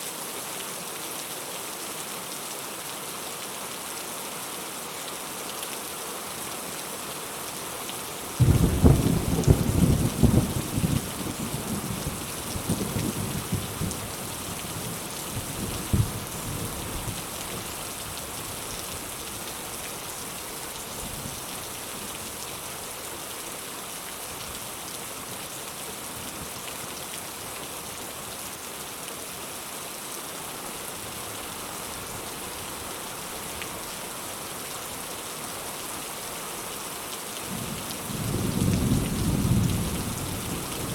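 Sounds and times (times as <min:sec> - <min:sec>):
steady rain falling: 0:00.0 - 0:40.9
rumbling thunderclap: 0:08.4 - 0:11.4.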